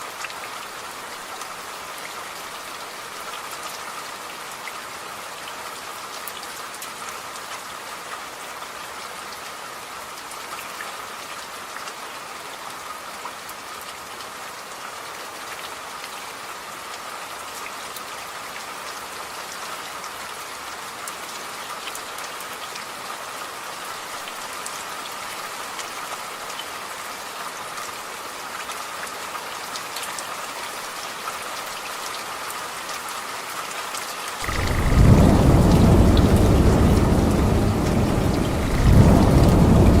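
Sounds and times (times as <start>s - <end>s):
steady rain falling: 0.0s - 40.0s
low rumble of thunder: 34.4s - 40.0s.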